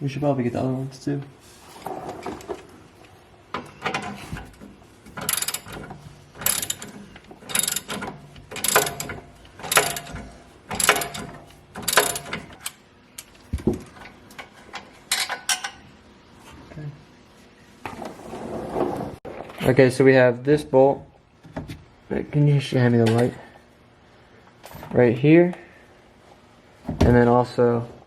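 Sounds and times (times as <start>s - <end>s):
ratchet wrench clicking: 5.2s - 5.8s, 6.4s - 13.4s.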